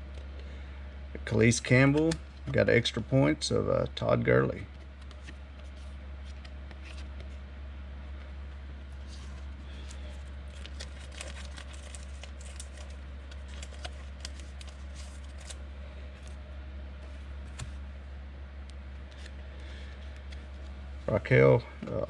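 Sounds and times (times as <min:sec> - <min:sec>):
low hum: 0:00.0 - 0:22.0
cards clicking and sliding: 0:05.0 - 0:07.4, 0:09.0 - 0:15.6, 0:17.0 - 0:17.8, 0:19.1 - 0:20.4.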